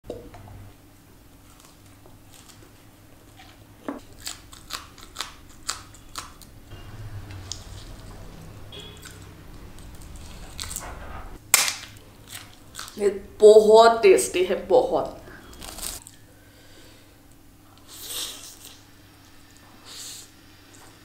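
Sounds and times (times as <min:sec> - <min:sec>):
crunchy food chewing: 0:01.4 - 0:11.0, 0:12.2 - 0:13.0.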